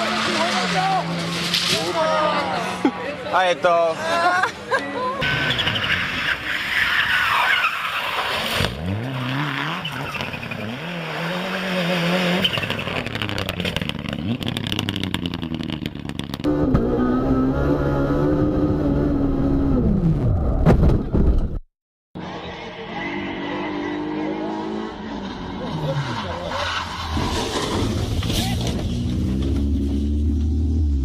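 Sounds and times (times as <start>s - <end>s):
rally car engine revving: 0.0s - 2.0s, 8.2s - 20.7s, 22.2s - 31.0s.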